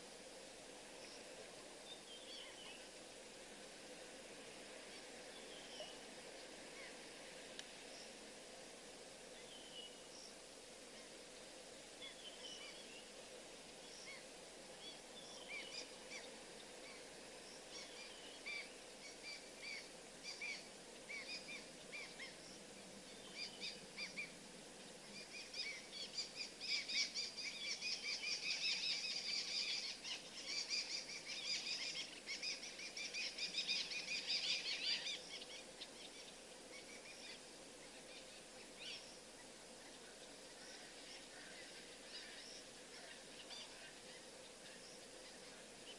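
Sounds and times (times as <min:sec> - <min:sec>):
birds chirping: 0:13.8 - 0:45.9.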